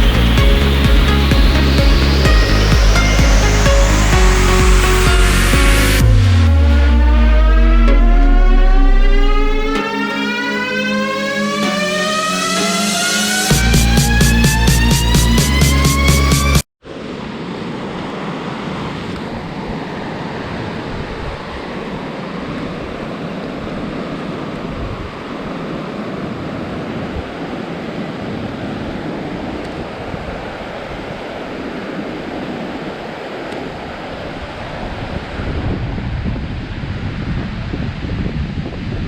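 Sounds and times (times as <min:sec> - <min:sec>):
wind rushing over microphone: 0:17.2 - 0:39.0.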